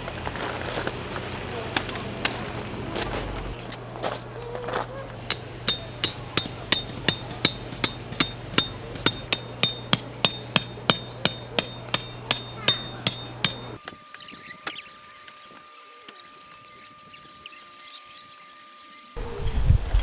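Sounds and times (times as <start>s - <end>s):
hammer striking metal peg: 5.2s - 13.8s.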